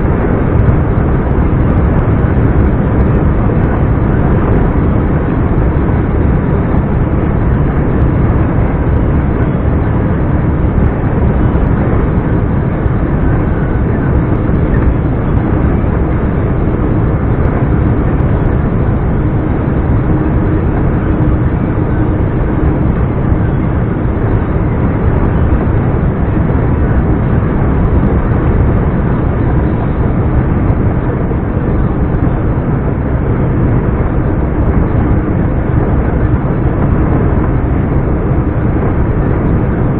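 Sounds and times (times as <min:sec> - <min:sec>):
diesel truck engine droning: 0:00.0 - 0:39.9.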